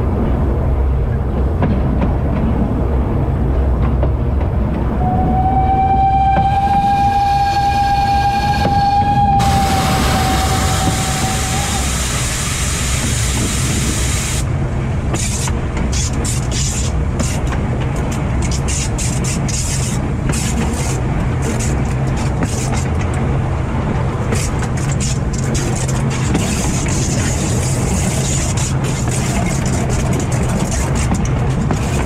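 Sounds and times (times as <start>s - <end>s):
train rumbling on track: 0.0s - 32.0s
wind noise on microphone: 0.0s - 32.0s.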